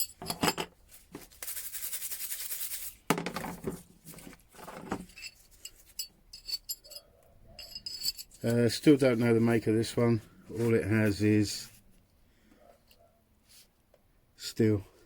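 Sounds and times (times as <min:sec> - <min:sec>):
metal parts scraping: 0:00.0 - 0:00.8, 0:01.6 - 0:09.5
light metallic clinks and taps: 0:04.8 - 0:08.7
high metallic ring: 0:05.1 - 0:08.4.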